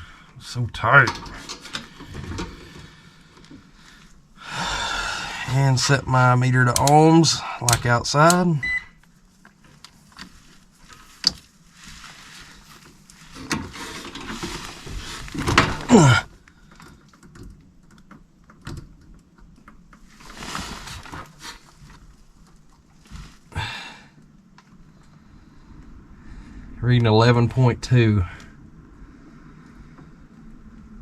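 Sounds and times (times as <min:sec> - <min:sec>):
small clicks and rustling: 0:07.7 - 0:23.5, 0:24.1 - 0:26.0.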